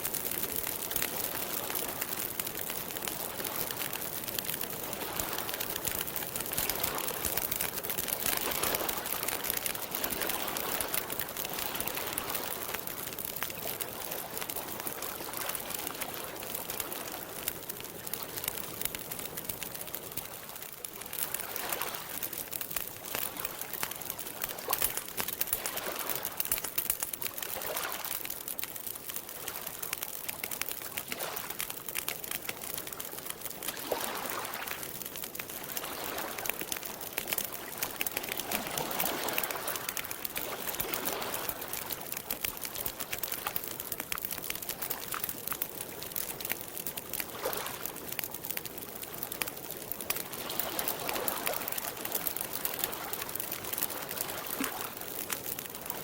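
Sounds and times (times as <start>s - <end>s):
campfire crackling and popping: 0.0s - 56.0s
lake water lapping: 37.5s - 43.6s.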